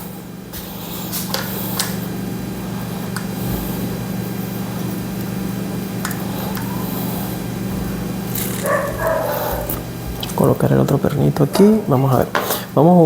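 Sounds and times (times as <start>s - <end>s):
low hum: 2.0s - 12.3s.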